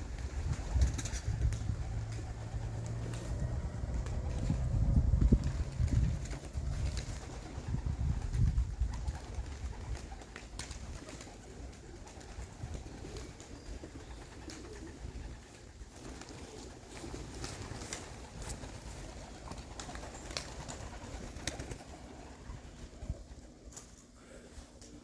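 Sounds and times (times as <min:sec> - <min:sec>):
pigeons cooing: 0:00.0 - 0:23.8.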